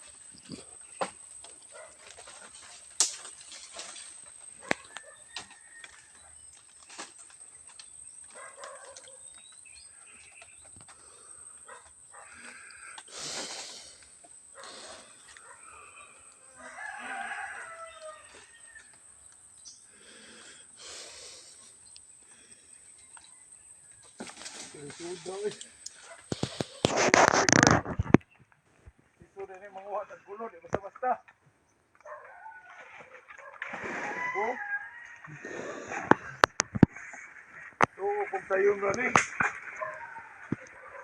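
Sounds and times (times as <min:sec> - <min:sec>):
rooster crowing: 0:04.6 - 0:06.4, 0:15.7 - 0:19.1, 0:33.6 - 0:36.1.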